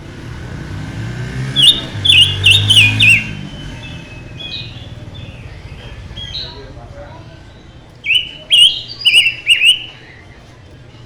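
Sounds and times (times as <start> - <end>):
songbird whistling notes: 1.5 - 6.8, 8.0 - 10.2.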